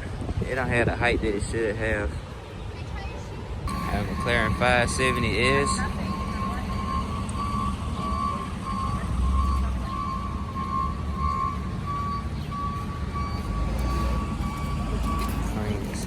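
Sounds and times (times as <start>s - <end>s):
vehicle backup alarm beeping: 3.7s - 16.0s.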